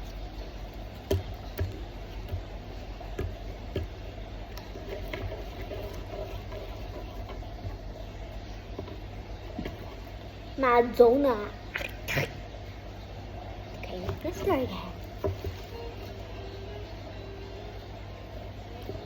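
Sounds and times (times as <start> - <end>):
slime squelching: 0.0 - 13.1.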